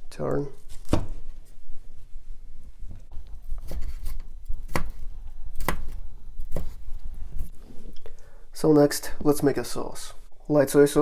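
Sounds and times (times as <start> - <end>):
knife striking cutting board: 3.1 - 7.5.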